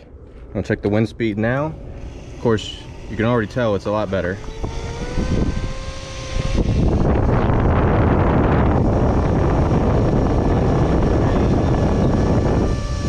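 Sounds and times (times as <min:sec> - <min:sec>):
air rushing over microphone: 0:00.0 - 0:13.0
faint steady whine: 0:00.0 - 0:13.0.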